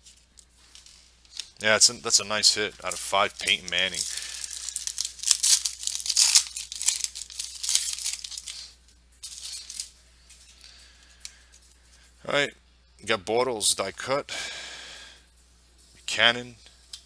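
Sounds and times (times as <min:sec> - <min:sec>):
foil wrapper tearing and crinkling: 0:02.8 - 0:09.9.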